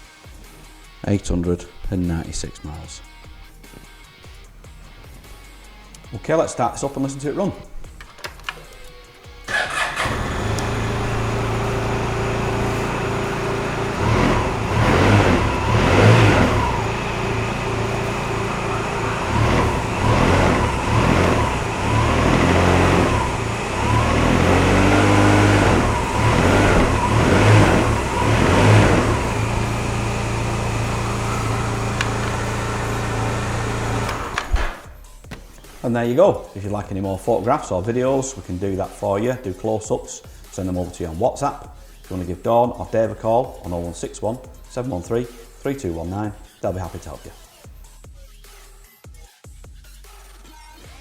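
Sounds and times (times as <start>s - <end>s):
scooter engine idling and revving: 9.0s - 35.8s.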